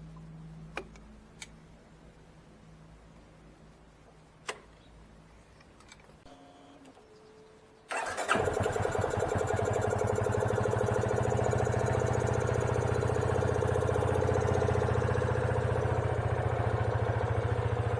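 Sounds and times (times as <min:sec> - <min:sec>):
engine cranking and starting: 0:07.9 - 0:11.0
engine idling: 0:07.9 - 0:17.9.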